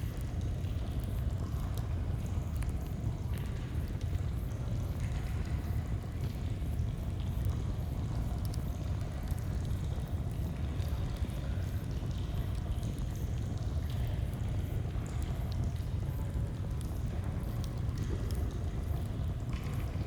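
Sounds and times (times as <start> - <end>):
faint campfire crackles: 7.1 - 20.0.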